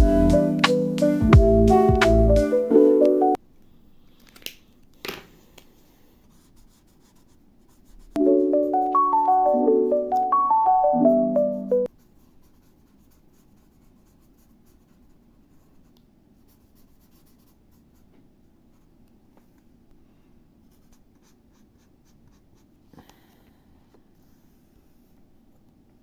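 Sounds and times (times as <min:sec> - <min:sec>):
pen scratching on paper: 0:05.8 - 0:08.1, 0:12.0 - 0:18.0.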